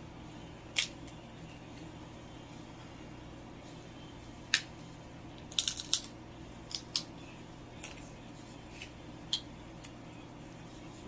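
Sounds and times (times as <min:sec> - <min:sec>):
seafood shells cracking: 0:05.4 - 0:07.1.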